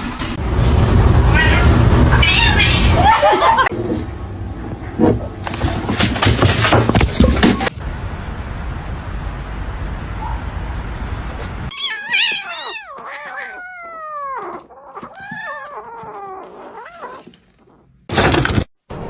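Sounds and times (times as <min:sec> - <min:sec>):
cat meowing: 0:01.3 - 0:03.0, 0:11.7 - 0:17.8.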